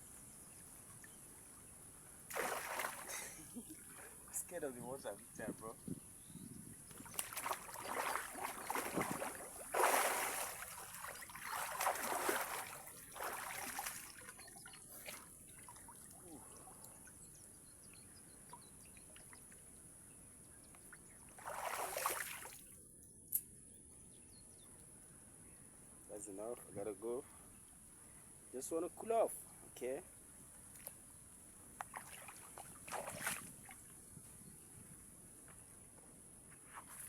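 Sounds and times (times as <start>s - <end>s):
water splashing from swimming: 2.3s - 4.1s, 6.9s - 17.1s, 21.4s - 22.6s, 31.8s - 33.7s.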